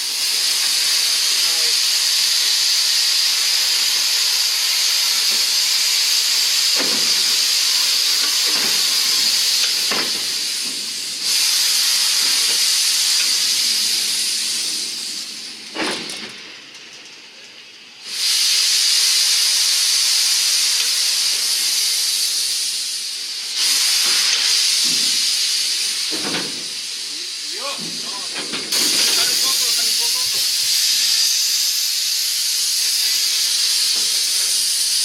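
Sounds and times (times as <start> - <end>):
pressurised gas venting hiss: 0.0 - 35.0.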